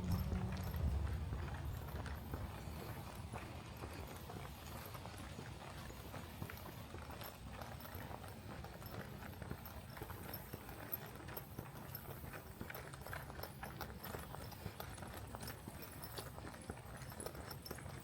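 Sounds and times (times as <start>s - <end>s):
low rumble: 0.0s - 3.2s
footsteps crunching on trail: 0.0s - 18.0s.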